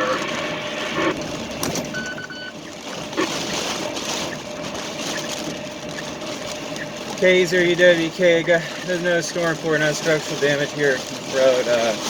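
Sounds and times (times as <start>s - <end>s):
pickup truck cabin noise: 0.0s - 10.0s
short electronic beep: 1.8s - 2.6s.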